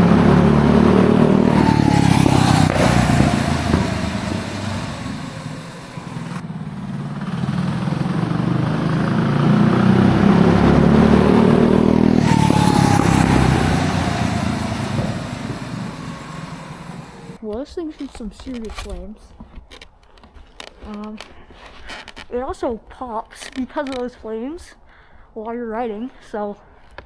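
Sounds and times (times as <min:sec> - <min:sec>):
minibike engine revving: 0:00.0 - 0:17.4.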